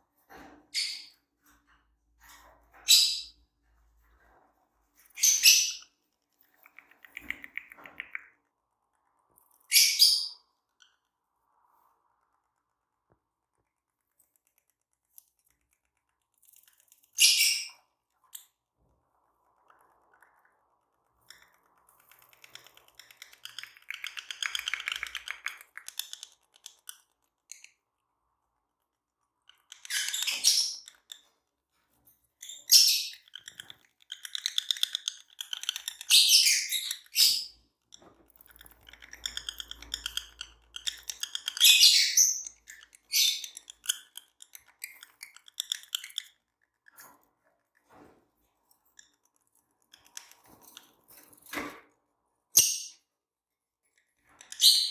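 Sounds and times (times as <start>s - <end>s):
lovebirds chirping: 5.1s - 5.9s, 9.6s - 10.5s, 38.5s - 46.3s, 54.4s - 54.9s.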